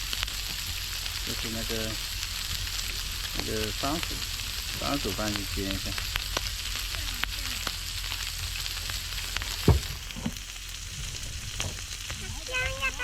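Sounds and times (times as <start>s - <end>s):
meat sizzling in a pan: 0.0s - 13.0s
loud low thump: 9.6s - 10.4s.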